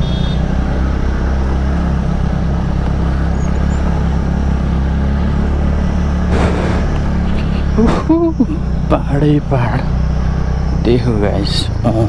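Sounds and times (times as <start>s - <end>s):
scooter engine running: 0.0s - 12.0s
short rush of noise: 6.3s - 8.1s.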